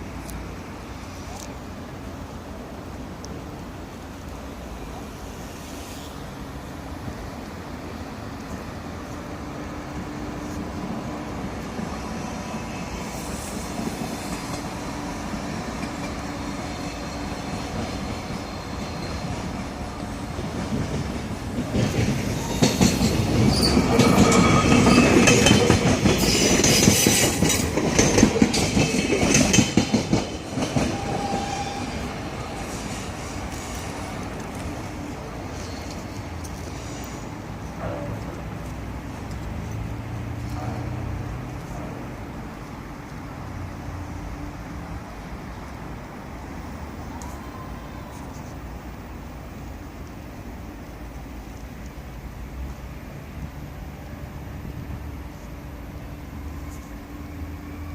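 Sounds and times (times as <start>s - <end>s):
train rumble: 0.0s - 57.9s
train wheels clicking over rail joints: 13.1s - 39.7s
high-pitched wheel squeal: 30.9s - 32.5s.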